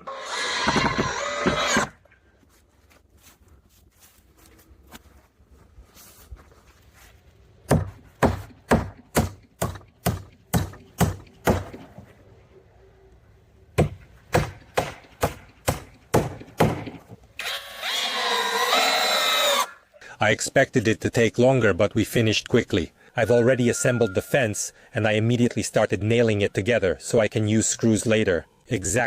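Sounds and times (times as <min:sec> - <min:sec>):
hammer driving nails into wood: 0:13.8 - 0:17.1.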